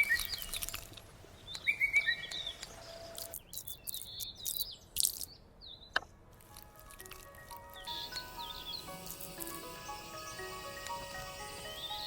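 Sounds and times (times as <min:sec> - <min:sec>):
birds chirping and singing: 0:01.4 - 0:05.9, 0:07.4 - 0:12.0.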